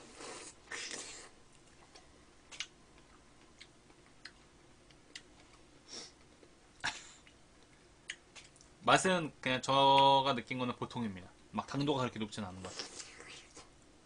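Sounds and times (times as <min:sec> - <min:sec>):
quiet chewing: 0:00.3 - 0:05.6.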